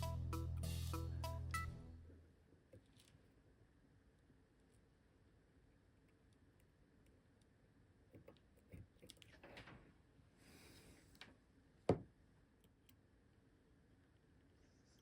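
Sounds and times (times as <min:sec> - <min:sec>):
small parts clicking and handled: 0:02.8 - 0:03.4.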